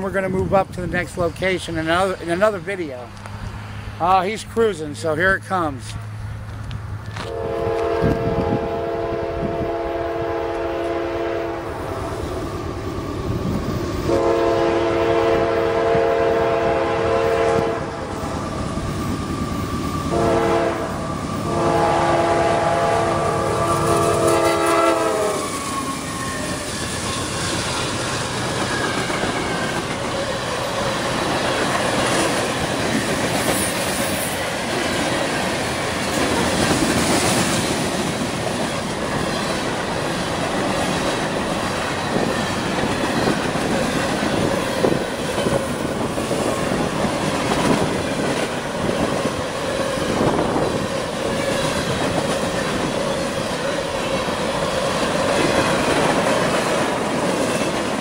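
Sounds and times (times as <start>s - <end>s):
locomotive horn: 7.2s - 11.8s, 14.1s - 18.0s, 20.1s - 25.6s
freight train wheels clattering: 23.7s - 58.0s.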